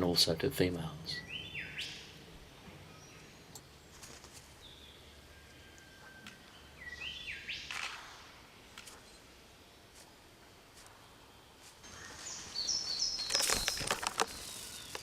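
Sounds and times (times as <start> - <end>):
bird call of stepped whistles: 11.9 - 15.0.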